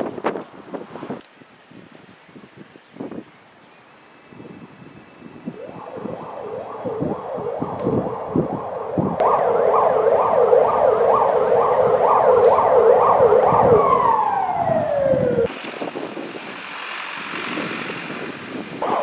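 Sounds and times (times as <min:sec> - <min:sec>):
siren on yelp: 0:05.3 - 0:15.5.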